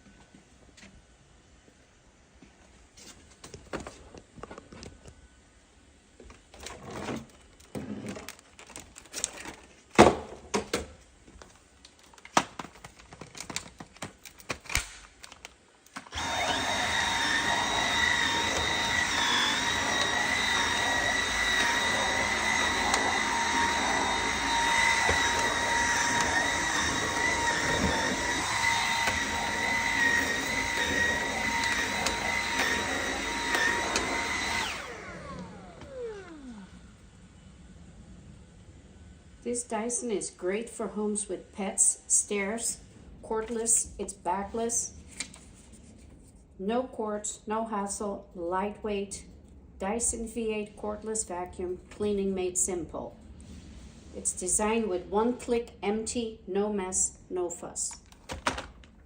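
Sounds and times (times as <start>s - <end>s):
vacuum cleaner running: 16.0s - 39.4s.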